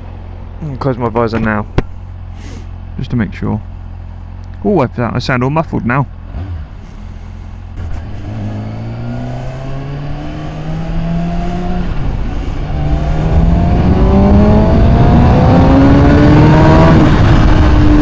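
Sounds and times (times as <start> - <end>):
motorcycle engine accelerating: 6.1 - 18.0.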